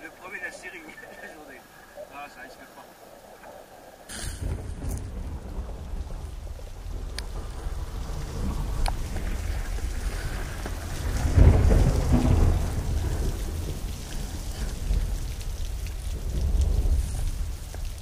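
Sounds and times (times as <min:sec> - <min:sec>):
underwater low rumble: 0:03.0 - 0:18.0.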